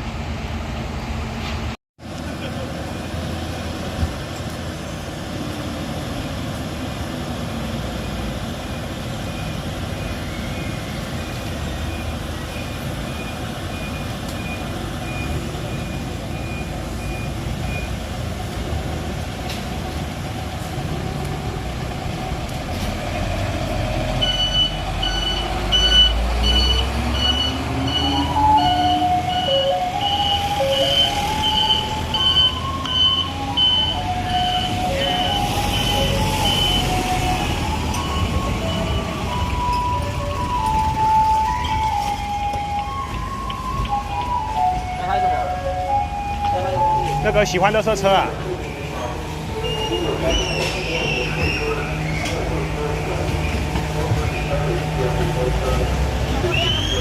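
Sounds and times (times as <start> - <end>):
garbage truck diesel engine: 0.0 - 57.0
loud reversing beep: 9.2 - 18.0, 24.0 - 42.2, 49.5 - 52.3
music-box melody: 37.9 - 47.2.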